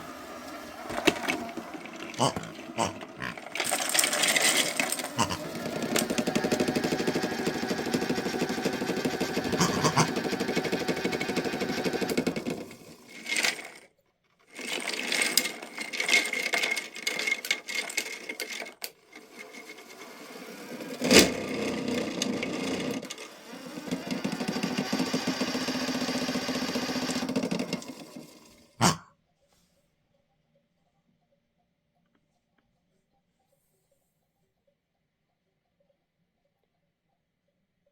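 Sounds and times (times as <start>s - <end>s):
washing machine drum rattling: 0.0s - 13.7s.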